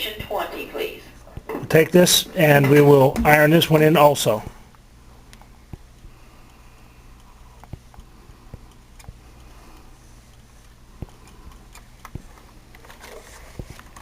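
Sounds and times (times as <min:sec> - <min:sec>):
low steady hum: 0:00.0 - 0:14.0
faint clicks and knocks: 0:07.2 - 0:14.0.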